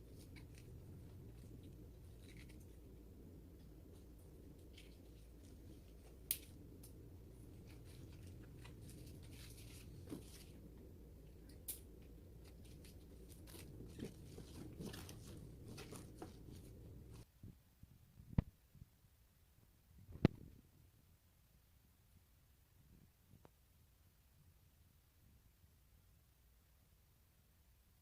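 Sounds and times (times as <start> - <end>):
rustling: 0.0 - 17.3
low steady hum: 0.0 - 28.0.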